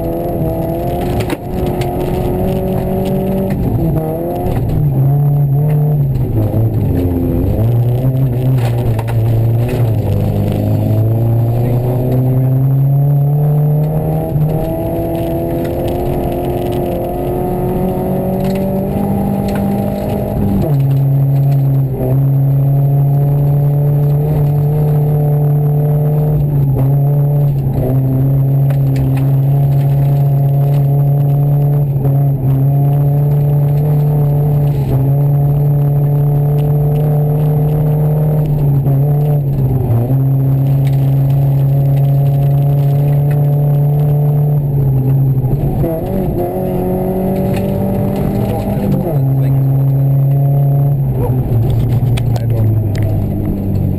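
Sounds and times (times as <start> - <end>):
rally car engine: 0.0 - 53.9.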